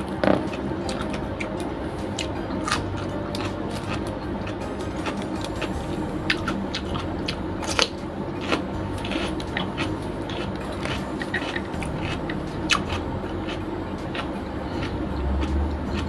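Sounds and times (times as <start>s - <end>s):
low hum: 0.0s - 16.0s
person chewing crunchy pepper: 0.0s - 16.0s.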